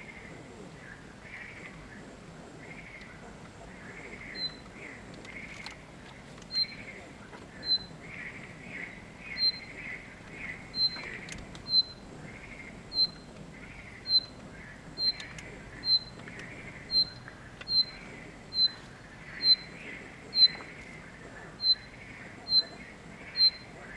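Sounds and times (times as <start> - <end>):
soft bird warbling: 6.5 - 20.8.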